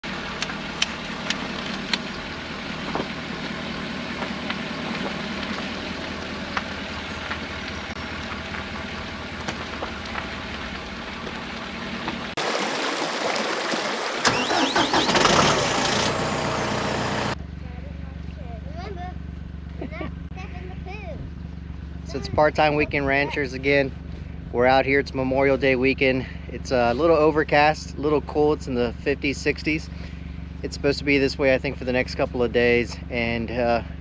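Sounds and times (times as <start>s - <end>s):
engine idling: 13.9s - 22.9s.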